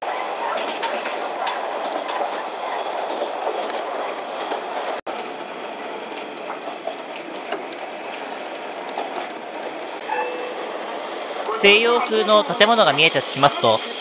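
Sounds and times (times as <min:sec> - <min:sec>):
train wheels on rail: 0:00.0 - 0:14.0
faint rail-joint clicks: 0:06.1 - 0:09.7.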